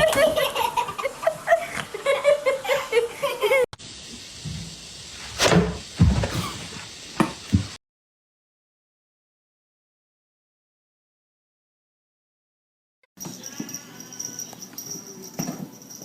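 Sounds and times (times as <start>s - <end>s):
person laughing: 0.0s - 3.7s.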